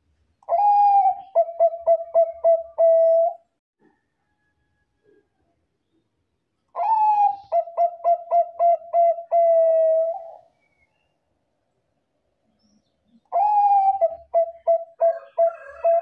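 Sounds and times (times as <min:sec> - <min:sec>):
dove cooing: 0:00.5 - 0:03.4, 0:06.8 - 0:10.5, 0:13.3 - 0:16.0.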